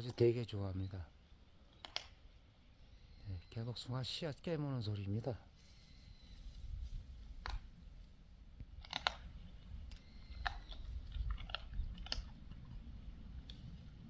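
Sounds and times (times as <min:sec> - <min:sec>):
pig cracking pits with teeth: 0:01.7 - 0:02.2, 0:07.4 - 0:07.7, 0:08.6 - 0:13.6
pig chewing: 0:08.6 - 0:14.0.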